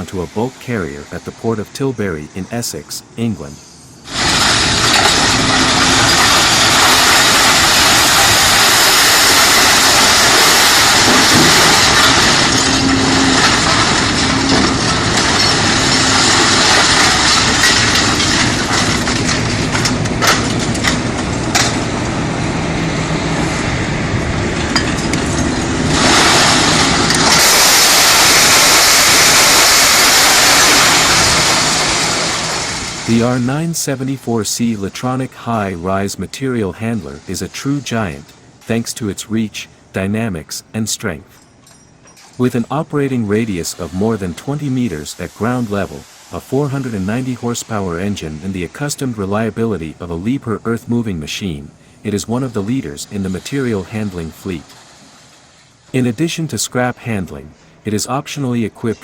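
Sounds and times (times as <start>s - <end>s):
scrap metal clattering: 4.1s - 21.9s
diesel engine running: 4.1s - 29.5s.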